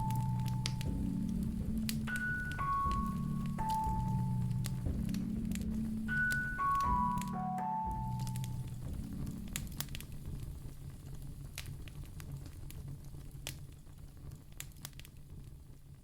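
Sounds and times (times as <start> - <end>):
soft music: 0.0 - 12.3
low steady hum: 0.0 - 14.6
wood fire crackling: 0.0 - 16.0.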